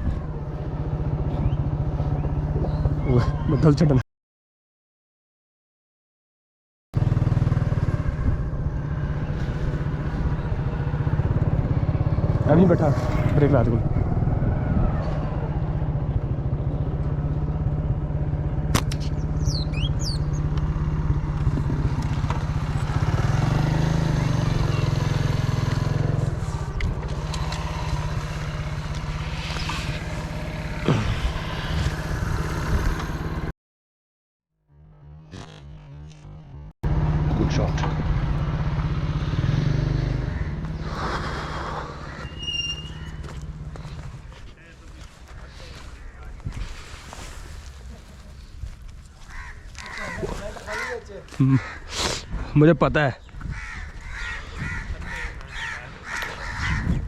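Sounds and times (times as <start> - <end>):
motorcycle engine running: 0.1 - 3.2, 7.0 - 33.5, 34.7 - 45.4.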